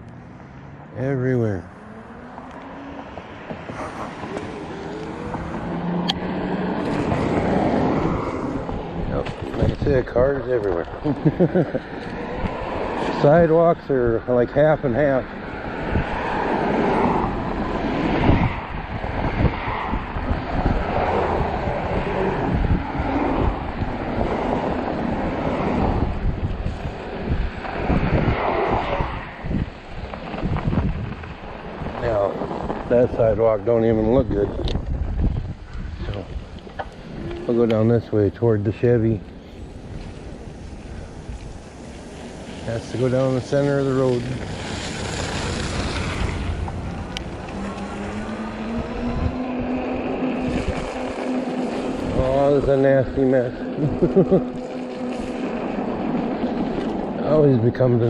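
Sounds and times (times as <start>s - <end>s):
electric bike low rumble: 0.0s - 58.0s
wind rushing over microphone: 0.0s - 58.0s
steady motor hum: 43.8s - 57.4s.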